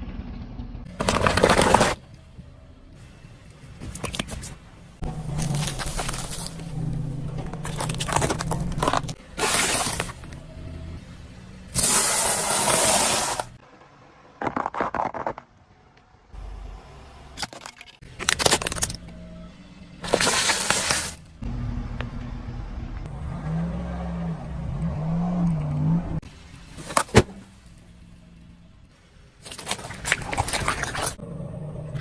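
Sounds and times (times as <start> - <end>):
objects crushed under car tyres: 0.9 - 2.0, 5.1 - 6.8, 7.4 - 10.3, 14.4 - 15.5
car engine running: 4.6 - 11.8.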